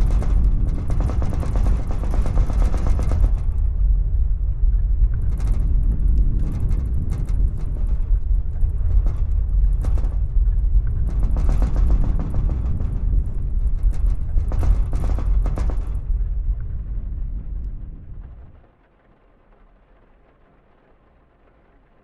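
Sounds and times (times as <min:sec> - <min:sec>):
objects rattling in a room: 0:00.0 - 0:03.9, 0:05.0 - 0:16.7
deep earthquake rumble: 0:00.0 - 0:22.0.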